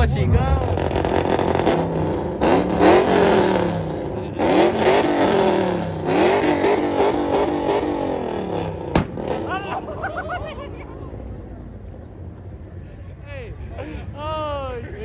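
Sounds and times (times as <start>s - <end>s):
vehicle engine revving: 0.0s - 10.3s.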